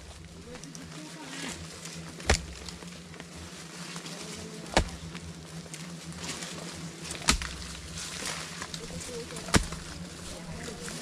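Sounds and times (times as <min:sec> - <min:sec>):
faint steady hum: 0:00.0 - 0:11.0
sharp knocks: 0:07.2 - 0:07.8.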